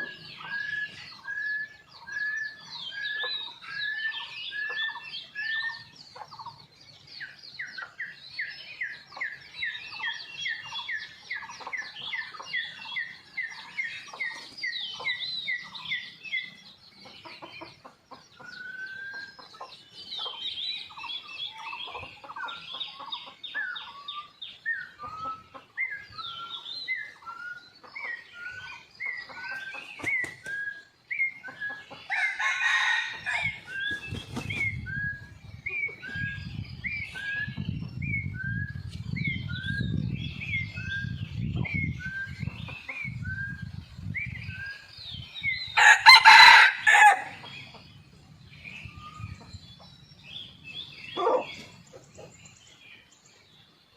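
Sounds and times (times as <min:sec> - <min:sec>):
small birds chirping: 0:00.0 - 0:53.9
junglefowl crow: 0:45.8 - 0:47.4.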